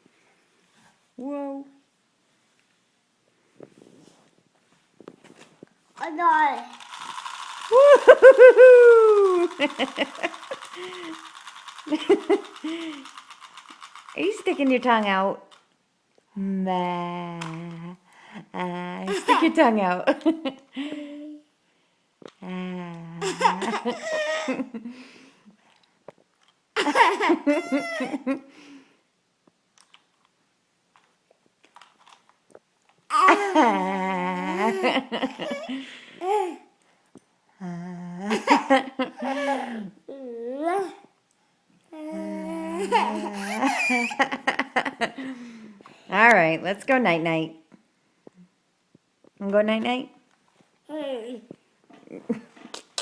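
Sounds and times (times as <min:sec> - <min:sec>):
child laughing: 0:07.7 - 0:11.2, 0:19.1 - 0:19.6, 0:23.2 - 0:24.8, 0:26.8 - 0:28.4, 0:33.1 - 0:36.7, 0:38.3 - 0:41.0, 0:42.0 - 0:45.2
toddler babbling: 0:39.3 - 0:41.1, 0:41.9 - 0:43.5, 0:50.9 - 0:51.5
wet mouth clicks and smacks: 0:52.7 - 0:53.0.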